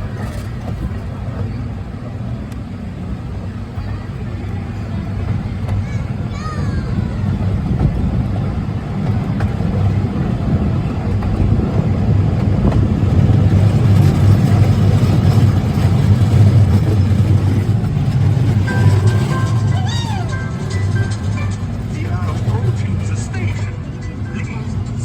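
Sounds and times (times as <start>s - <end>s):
miniature train rumbling on track: 0.0s - 25.0s.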